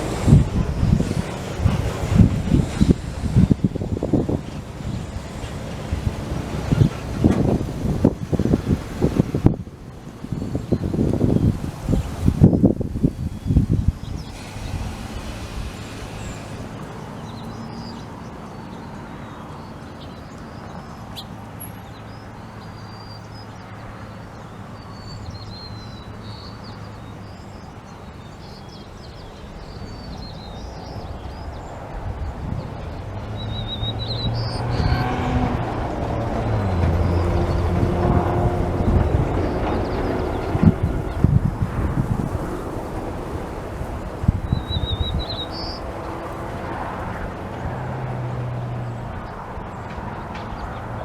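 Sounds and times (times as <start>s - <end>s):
low engine hum: 0.0s - 28.3s, 29.1s - 51.0s
small birds chirping: 10.2s - 42.9s, 43.9s - 46.4s.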